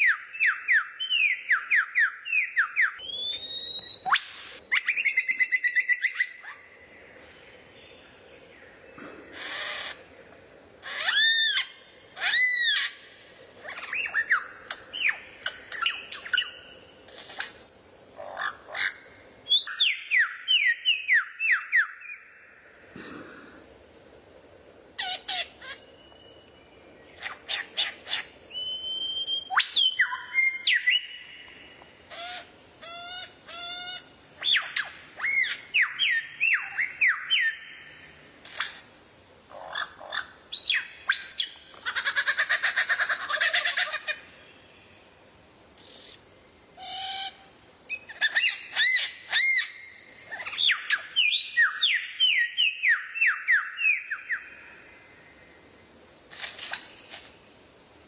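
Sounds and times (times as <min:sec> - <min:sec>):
faint recording hiss: 0:00.0 - 0:58.0
songbird singing: 0:00.0 - 0:58.0.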